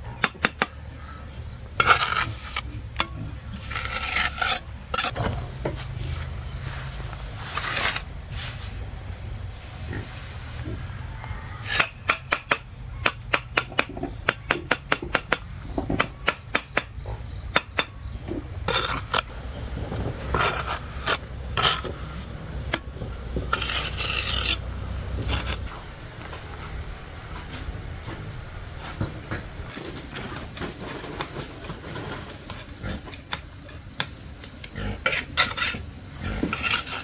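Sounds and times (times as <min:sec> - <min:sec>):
rasping scrapes: 0:01.8 - 0:05.2, 0:06.0 - 0:08.8, 0:18.7 - 0:25.8, 0:35.0 - 0:37.0
steady low hum: 0:17.0 - 0:31.8.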